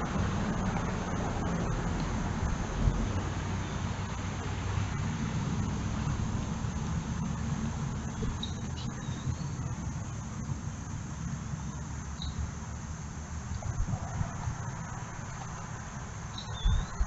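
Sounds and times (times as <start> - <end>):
crickets trilling: 0.0 - 17.0
low outdoor rumble: 0.0 - 17.0
bird chirps: 8.0 - 9.8, 11.7 - 12.4, 16.3 - 17.0.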